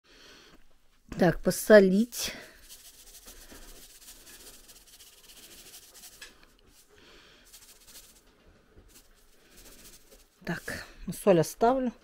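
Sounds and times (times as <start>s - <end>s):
salt being sprinkled: 1.9s - 10.9s.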